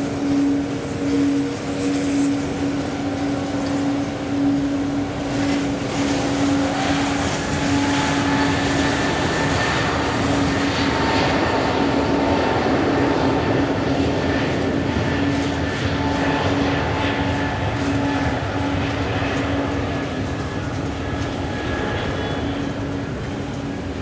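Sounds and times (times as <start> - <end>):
jet engines whining and roaring: 0.0 - 24.0
steady low hum: 0.0 - 24.0.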